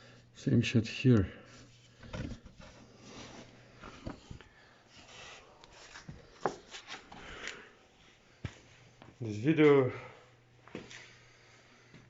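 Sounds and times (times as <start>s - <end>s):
soft rubbing and rustling: 1.4s - 9.8s.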